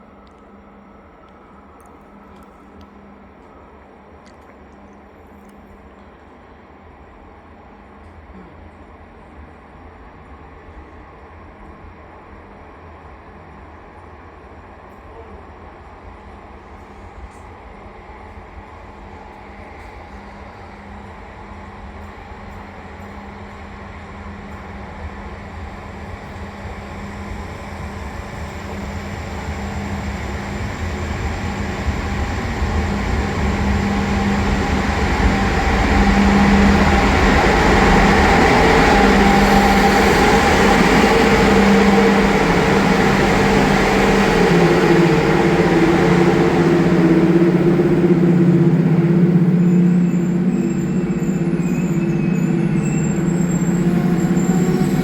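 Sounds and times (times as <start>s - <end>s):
train rumbling: 9.3s - 55.0s
locomotive hum: 25.4s - 55.0s.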